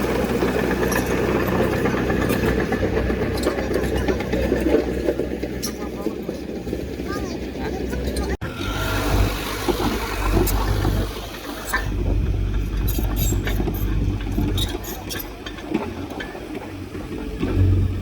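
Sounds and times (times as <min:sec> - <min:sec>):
metal clanks and knocks: 0:00.0 - 0:06.4, 0:11.6 - 0:18.0
diesel engine rumbling: 0:00.0 - 0:18.0.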